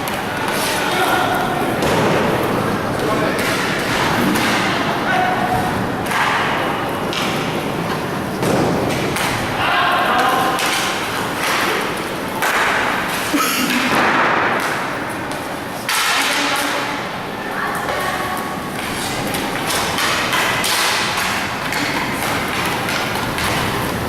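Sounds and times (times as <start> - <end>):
puck and sticks hitting boards: 0.0 - 17.0, 17.8 - 24.0
faint shouts of players: 9.5 - 10.6.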